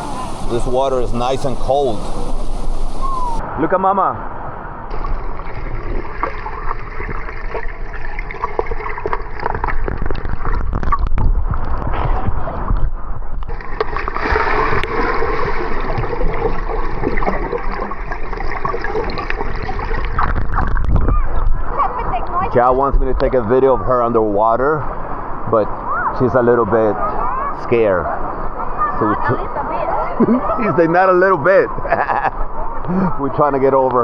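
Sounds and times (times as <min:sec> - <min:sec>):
water splashing in waterfall pool: 0:00.0 - 0:03.4, 0:04.9 - 0:11.0, 0:13.5 - 0:21.0.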